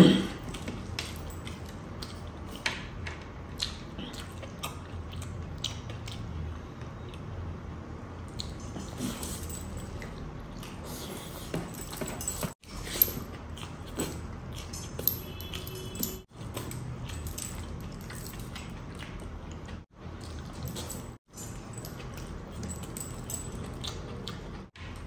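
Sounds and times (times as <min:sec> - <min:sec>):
chewing food: 0:00.3 - 0:07.6, 0:12.6 - 0:25.0.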